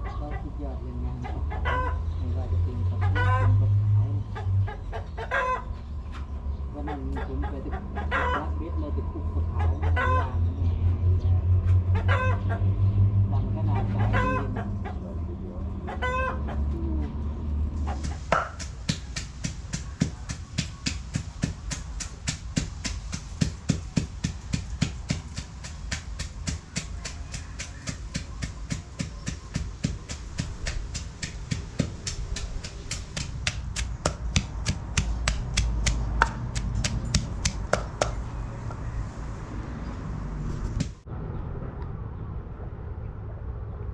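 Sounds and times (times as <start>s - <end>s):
chicken calling: 0.0s - 8.7s, 9.4s - 10.6s, 11.8s - 12.8s, 13.4s - 21.5s.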